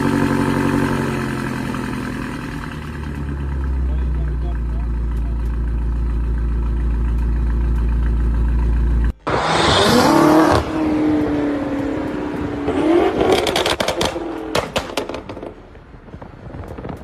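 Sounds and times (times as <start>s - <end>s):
car engine revving: 0.0s - 15.7s
exhaust pops and crackles: 12.0s - 17.0s.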